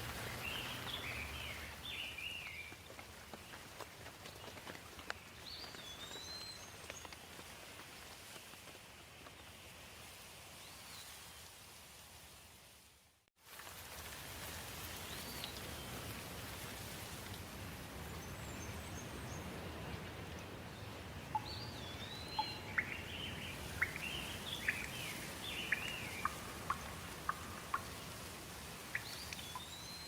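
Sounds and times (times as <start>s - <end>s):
rain hissing: 0.0s - 2.7s, 22.7s - 30.0s
songbirds chirping and whistling: 21.3s - 27.8s, 28.9s - 30.0s.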